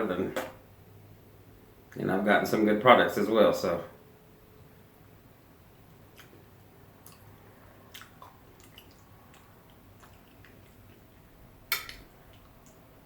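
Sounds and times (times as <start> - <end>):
soft chewing: 5.8 - 13.0
wet mouth clicks: 6.2 - 6.4, 7.0 - 7.3, 7.9 - 11.2.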